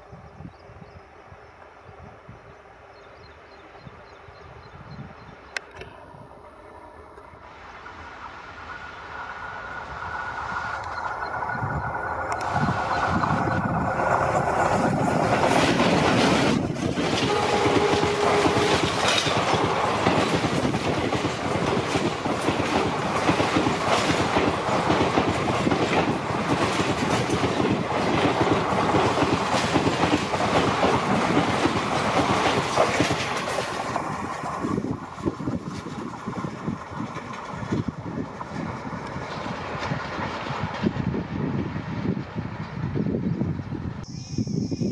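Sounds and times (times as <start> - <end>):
diesel locomotives passing: 0.0 - 44.9
wheels clacking over rail joints: 9.1 - 41.2
short steady tone: 44.0 - 44.9.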